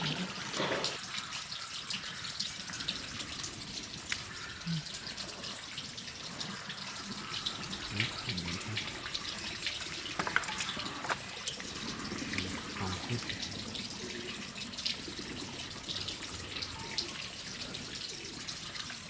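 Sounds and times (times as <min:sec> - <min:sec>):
water dripping and trickling: 0:00.0 - 0:19.0
water running and splashing: 0:00.0 - 0:19.0
faint low voices: 0:07.7 - 0:09.1, 0:12.0 - 0:13.6.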